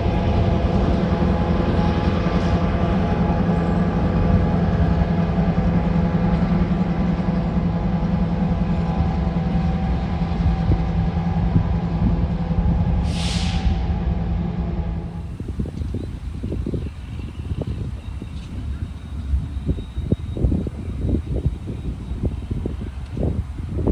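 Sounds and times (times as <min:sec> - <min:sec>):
diesel locomotive engine drone: 0:00.0 - 0:23.9.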